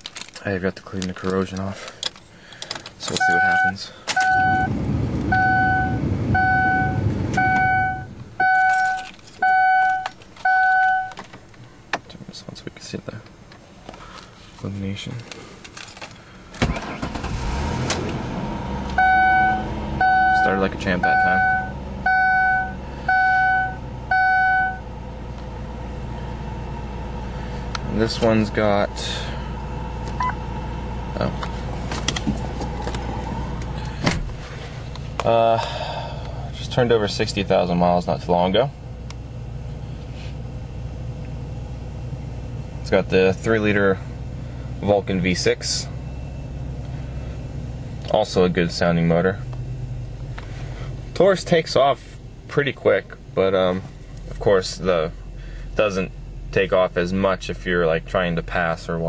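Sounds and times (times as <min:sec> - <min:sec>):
car engine idling: 0:00.0 - 0:59.0
car warning chime beeping: 0:03.1 - 0:11.2, 0:18.9 - 0:24.9, 0:30.2 - 0:30.5
low rumble: 0:04.3 - 0:09.1, 0:17.1 - 0:42.9.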